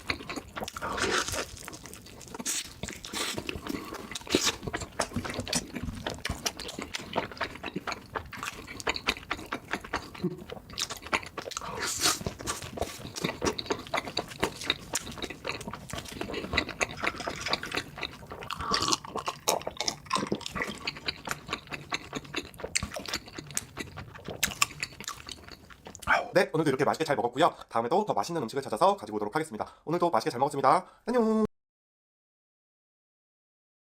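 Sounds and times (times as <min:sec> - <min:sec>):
person chewing and smacking: 0:00.0 - 0:26.3.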